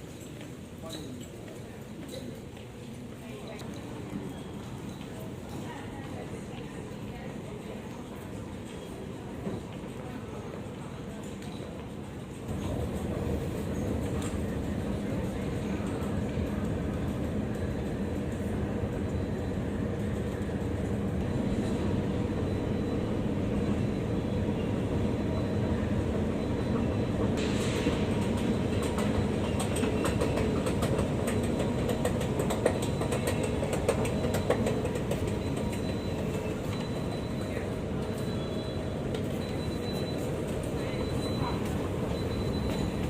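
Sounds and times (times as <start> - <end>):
train low rumble: 3.9 - 43.0.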